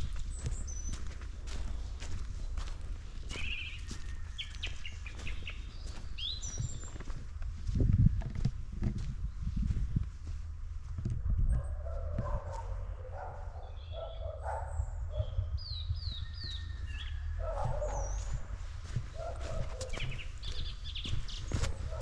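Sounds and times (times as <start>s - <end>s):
walking clicks: 0.0s - 9.2s, 17.4s - 22.0s
wind on microphone: 6.5s - 12.7s
distant dog barking: 11.3s - 15.6s, 17.2s - 22.0s.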